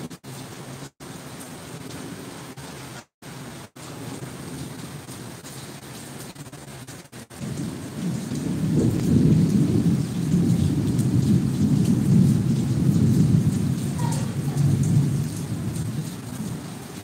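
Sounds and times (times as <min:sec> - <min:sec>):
heavy rain: 0:00.0 - 0:17.0
thunder rumbling: 0:07.3 - 0:17.0.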